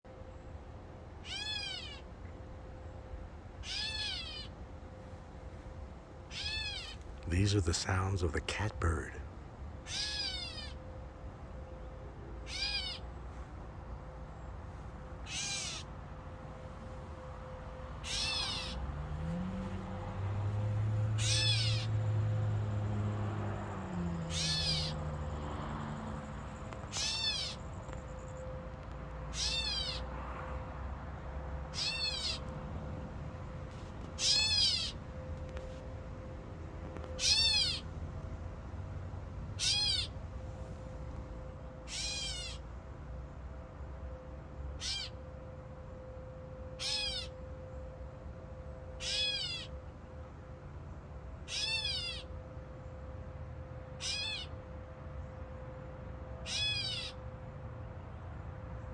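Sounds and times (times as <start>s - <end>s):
catbird mewing call: 1.2s - 2.1s, 3.6s - 4.6s, 6.3s - 7.0s, 9.9s - 10.8s, 12.5s - 13.1s, 15.3s - 15.9s, 18.0s - 18.8s, 21.2s - 21.9s, 24.3s - 25.0s, 26.9s - 27.6s, 29.3s - 30.1s, 31.7s - 32.5s, 34.2s - 35.0s, 37.1s - 37.9s, 39.6s - 40.2s, 41.9s - 42.6s, 44.8s - 45.2s, 46.8s - 47.3s, 49.0s - 49.7s, 51.5s - 52.3s, 54.0s - 54.5s, 56.5s - 57.2s.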